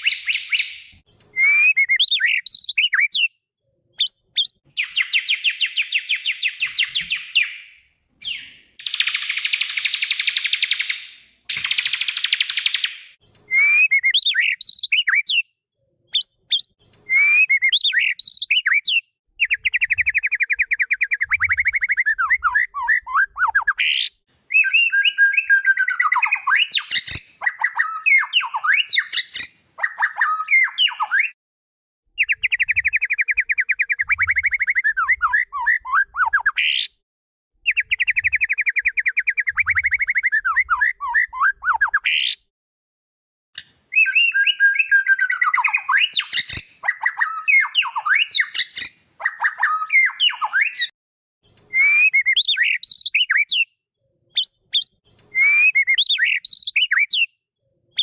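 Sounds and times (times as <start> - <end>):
bird singing trills and whistles: 0.0 - 3.4, 4.0 - 31.4, 32.2 - 37.0, 37.6 - 42.4, 43.6 - 57.4
sharp click: 11.5 - 12.2.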